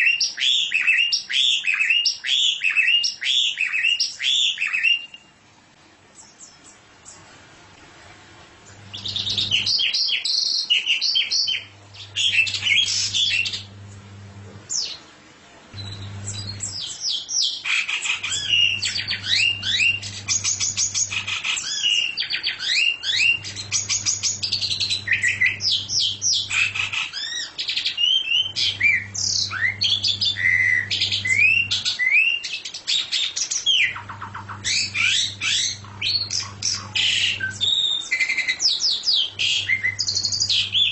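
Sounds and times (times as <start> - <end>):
songbird chirping and trilling: 0.0 - 5.3, 6.1 - 7.3, 8.6 - 14.1, 15.8 - 40.9
low steady hum: 5.5 - 9.8, 11.4 - 17.0, 18.2 - 21.7, 23.0 - 27.1, 28.3 - 32.0, 33.8 - 37.8, 39.2 - 40.9.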